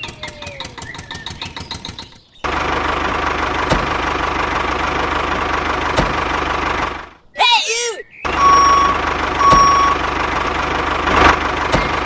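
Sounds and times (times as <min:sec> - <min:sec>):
engine running: 0:00.0 - 0:07.3, 0:08.2 - 0:12.0.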